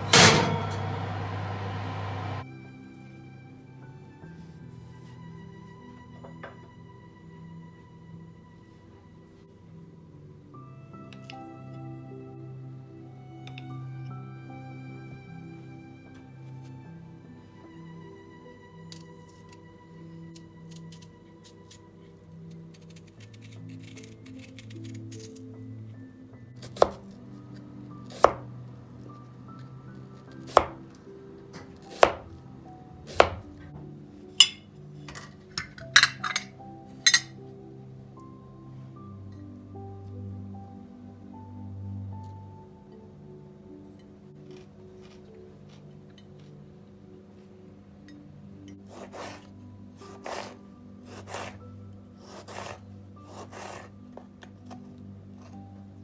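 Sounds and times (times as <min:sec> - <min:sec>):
soft background music: 0:02.4 - 0:56.0
knife chopping on cutting board: 0:26.7 - 0:27.0, 0:28.2 - 0:28.5, 0:30.4 - 0:30.8, 0:31.9 - 0:32.3, 0:33.1 - 0:33.5, 0:48.9 - 0:49.4.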